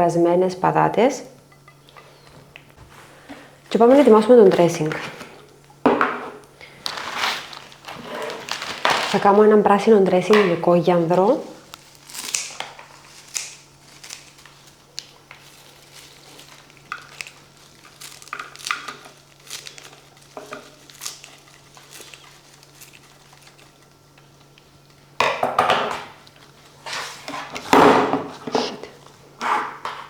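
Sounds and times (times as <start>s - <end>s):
scraping rustle: 6.8s - 9.3s.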